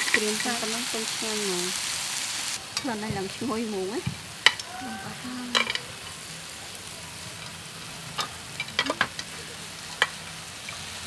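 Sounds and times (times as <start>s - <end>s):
food sizzling in frying pan: 0.0s - 11.0s
utensils clicking against pan: 8.2s - 9.3s.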